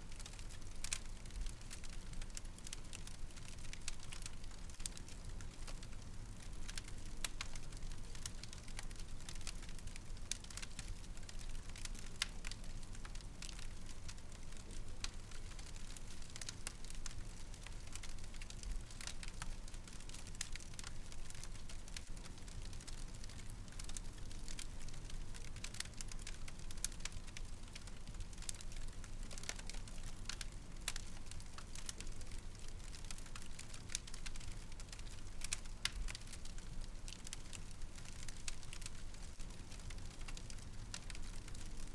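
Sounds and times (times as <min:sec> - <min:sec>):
fire crackling in a fireplace: 0:00.0 - 0:41.9.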